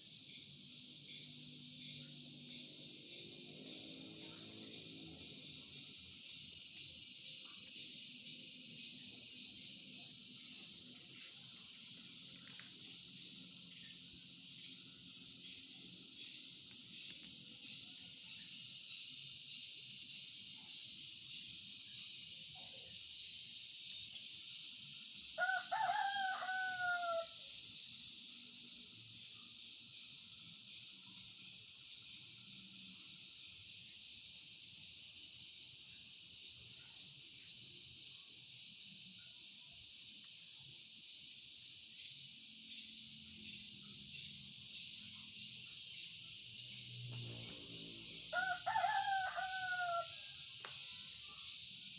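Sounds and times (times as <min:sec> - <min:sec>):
high insect drone: 0:00.0 - 0:51.9
rooster crowing: 0:25.4 - 0:27.4, 0:48.2 - 0:50.5.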